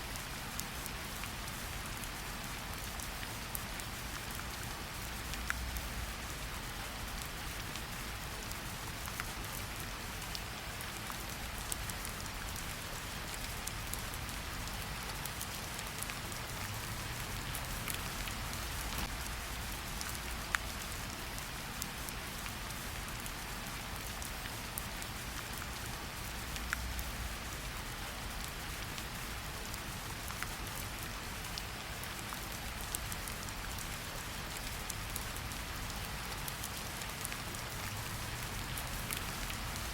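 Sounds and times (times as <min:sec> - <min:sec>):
raindrops pattering close by: 0:00.0 - 0:39.9
steady rainfall: 0:00.0 - 0:39.9.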